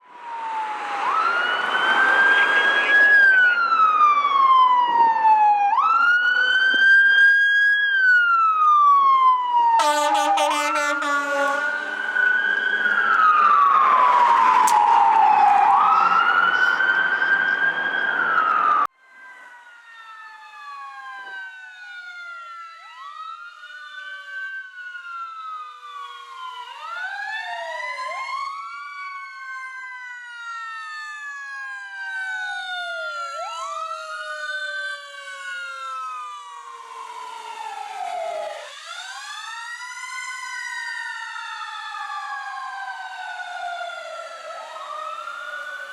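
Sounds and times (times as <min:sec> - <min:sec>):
distant sirens wailing: 0:00.0 - 0:45.9
loud close siren: 0:00.0 - 0:45.9
heavy vehicle noise: 0:09.8 - 0:18.8.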